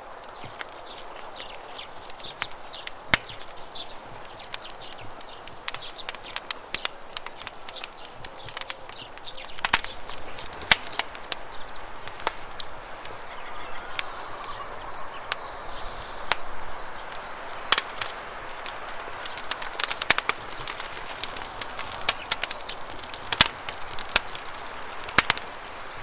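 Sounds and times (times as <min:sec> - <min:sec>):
campfire crackling and popping: 0:00.0 - 0:26.0
river water flowing: 0:09.9 - 0:26.0.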